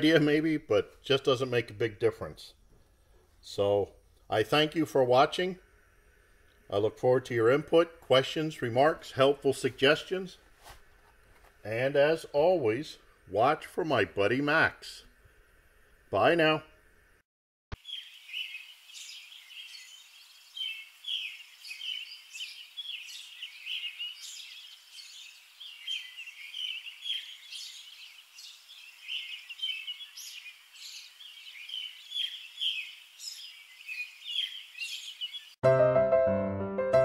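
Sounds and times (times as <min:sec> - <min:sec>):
birds chorus chirping: 0:17.8 - 0:35.6
piano music: 0:35.6 - 0:37.0.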